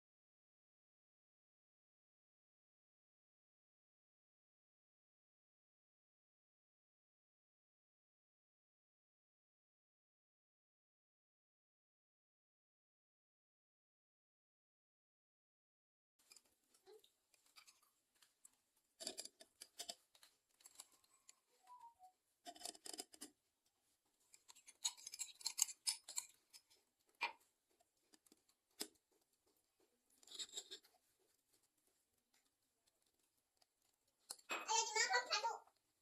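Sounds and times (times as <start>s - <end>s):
kitchen utensils scraping and clicking: 19.0s - 21.7s, 22.5s - 23.4s, 24.3s - 27.4s, 30.1s - 31.0s.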